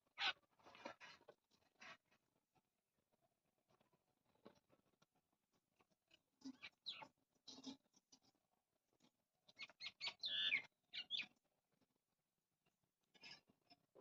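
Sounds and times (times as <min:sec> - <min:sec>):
birds pecking at grain: 0:03.6 - 0:12.0
small birds chirping: 0:06.1 - 0:08.3, 0:09.4 - 0:11.4.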